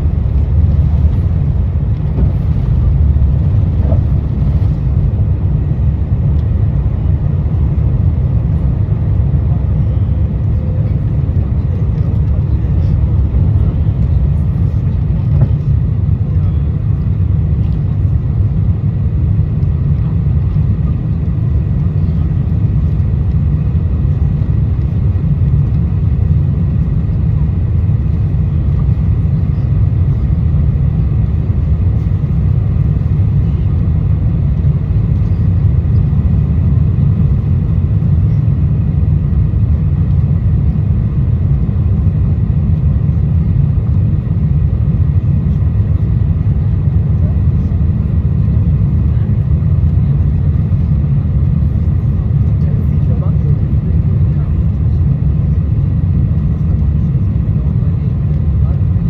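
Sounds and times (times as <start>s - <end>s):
faint steady whine: 0.0s - 8.7s
deep rumble of jet engines: 0.0s - 59.0s.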